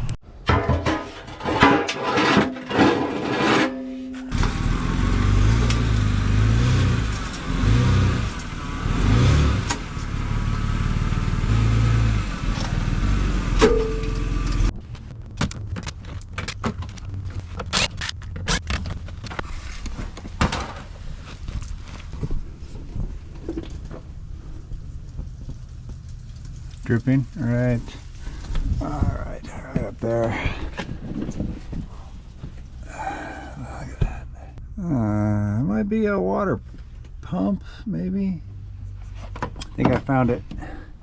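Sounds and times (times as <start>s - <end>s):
clatter: 0.5s - 28.7s
car engine running: 4.2s - 35.0s.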